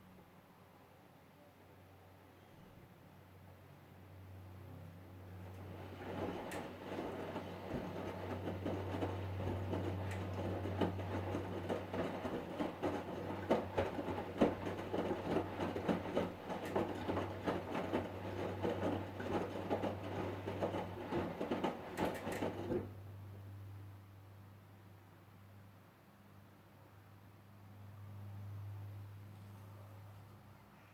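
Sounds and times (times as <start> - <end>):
washing machine hum: 3.3 - 25.0, 26.2 - 30.9
clicks and rattles clatter: 5.4 - 22.9.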